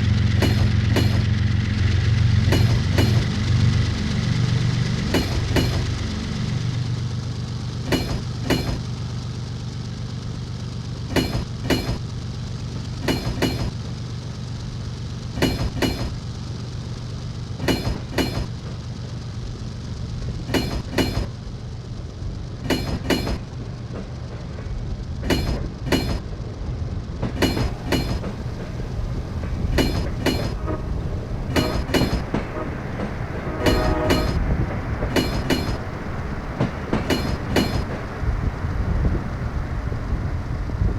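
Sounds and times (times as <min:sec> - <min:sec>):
train wheels clicking over rail joint: 0:00.0 - 0:06.6, 0:07.6 - 0:09.2, 0:10.9 - 0:38.4
steady low rumble: 0:00.0 - 0:40.9.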